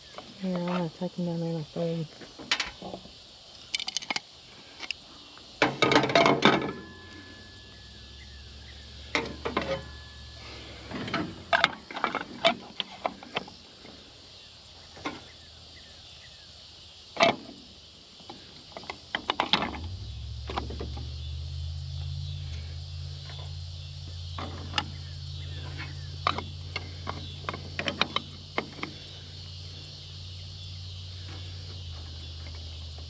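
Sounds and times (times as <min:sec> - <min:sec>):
low steady hum: 0:00.0 - 0:33.0
garden seeder clicking and knocking: 0:03.7 - 0:04.2, 0:25.6 - 0:29.0.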